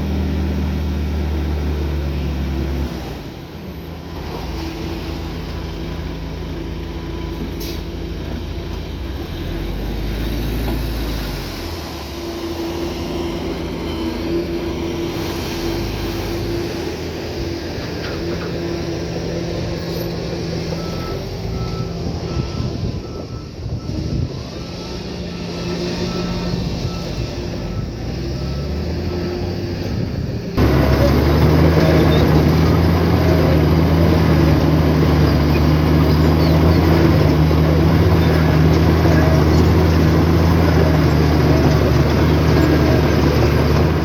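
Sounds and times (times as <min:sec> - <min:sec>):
heavy diesel machinery running: 0:00.0 - 0:44.0
reversing alarm beeping: 0:20.6 - 0:29.2.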